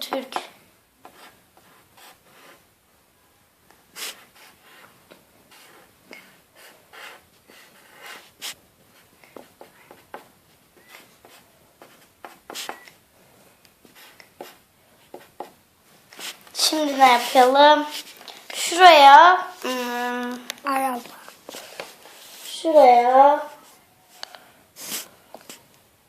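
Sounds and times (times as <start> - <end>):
drawing tool rubbing on paper: 6.6 - 8.6, 16.2 - 18.8.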